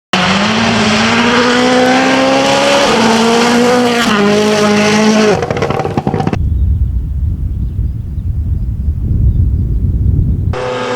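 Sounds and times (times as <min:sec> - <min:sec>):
rally car engine at full throttle: 0:00.1 - 0:06.6, 0:10.3 - 0:10.9
exhaust crackling and popping: 0:05.3 - 0:10.6.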